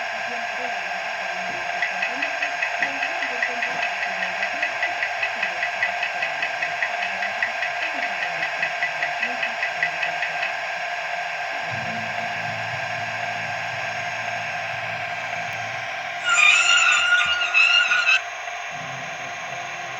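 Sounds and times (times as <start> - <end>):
mechanical hum: 10.6 - 19.9.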